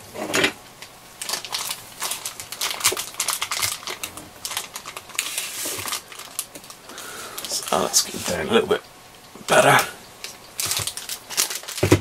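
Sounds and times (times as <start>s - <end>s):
packaging clicks and crinkles: 0.8s - 8.4s, 9.7s - 12.0s
packaging rustle: 1.2s - 8.4s, 10.2s - 12.0s.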